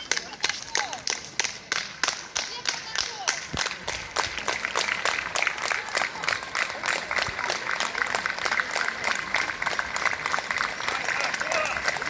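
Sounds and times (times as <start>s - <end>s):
crowd clapping: 0.0s - 12.0s
crowd shouting: 10.8s - 12.0s.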